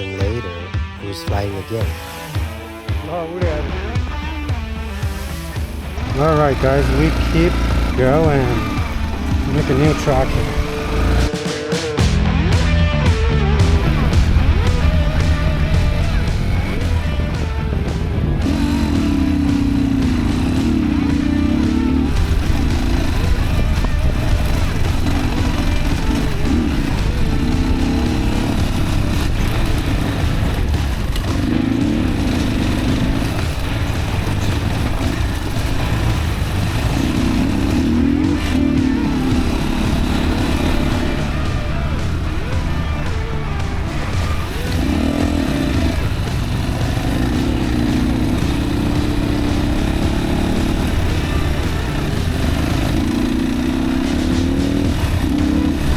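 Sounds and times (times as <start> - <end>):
dirt bike engine running: 0.0 - 55.9.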